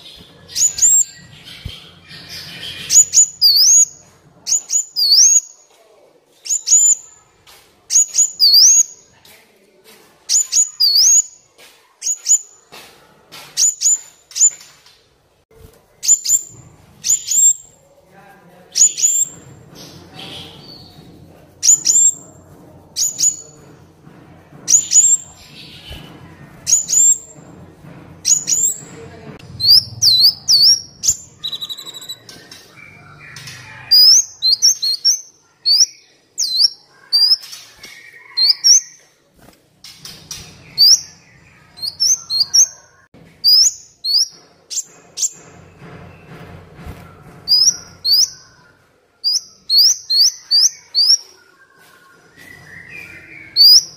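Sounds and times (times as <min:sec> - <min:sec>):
bird chirping: 0:00.0 - 0:05.7, 0:06.4 - 0:07.3, 0:07.9 - 0:09.1, 0:16.0 - 0:17.8, 0:18.7 - 0:22.4, 0:24.7 - 0:27.4, 0:28.2 - 0:39.2, 0:39.8 - 0:46.4, 0:47.4 - 0:53.9.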